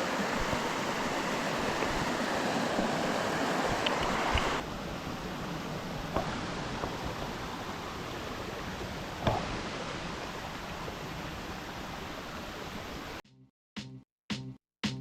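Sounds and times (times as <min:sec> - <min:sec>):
waterfall roaring: 0:00.0 - 0:13.2.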